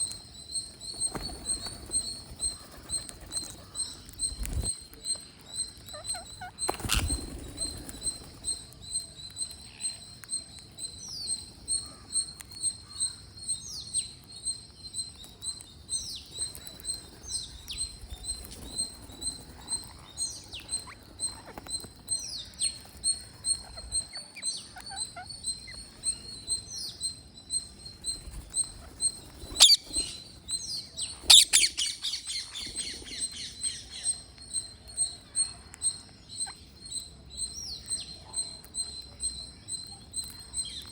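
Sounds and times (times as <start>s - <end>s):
parrot high chirps: 5.7s - 7.2s, 23.6s - 25.9s, 31.3s - 33.6s.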